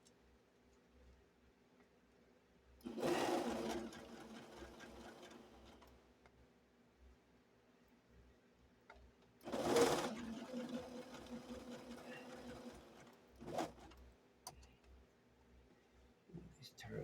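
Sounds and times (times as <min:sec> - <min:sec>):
sewing machine stitching: 0:02.8 - 0:05.9, 0:09.4 - 0:14.1.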